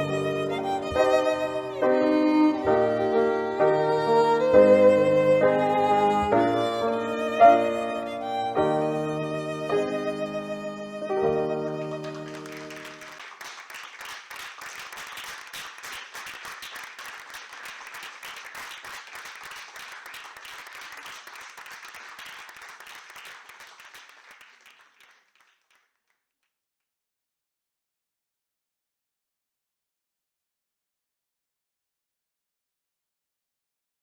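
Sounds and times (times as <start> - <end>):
violin chord music: 0.0 - 12.8
audience applause: 11.8 - 25.8.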